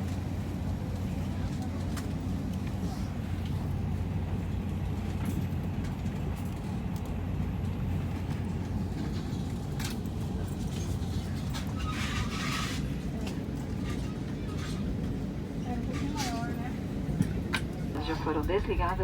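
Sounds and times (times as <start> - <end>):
airliner cabin hum: 16.8 - 19.0
ventilation air rush: 18.0 - 19.0.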